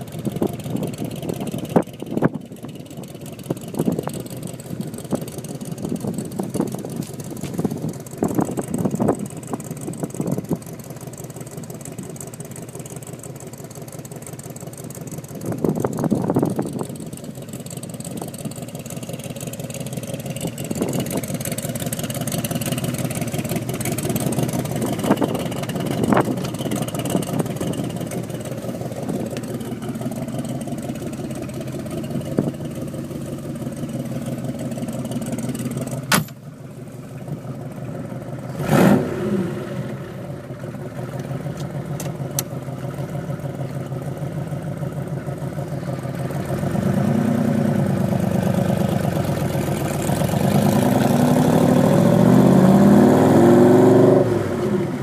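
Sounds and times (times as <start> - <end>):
car engine idling: 0.0 - 55.0
car accelerating through gears: 38.5 - 40.0, 49.8 - 55.0.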